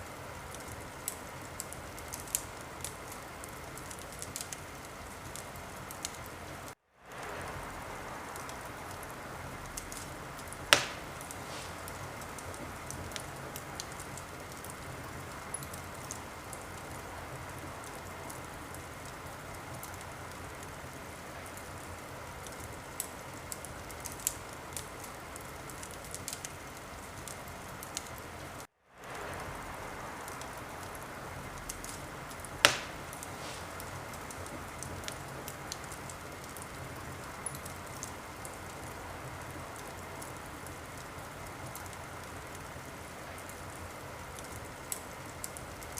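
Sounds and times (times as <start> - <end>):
wood fire crackling: 0.0 - 45.9
fire loud pops: 9.7 - 14.7, 31.6 - 36.6.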